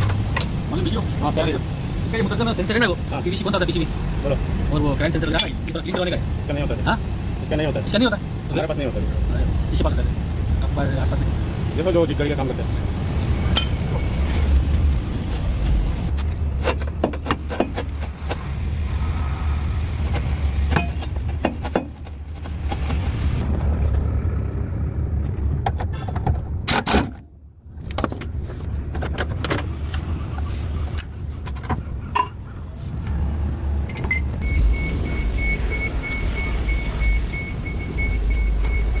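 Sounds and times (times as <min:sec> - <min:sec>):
car engine rumble: 0:00.0 - 0:39.0
rapid high electronic beep: 0:34.1 - 0:39.0.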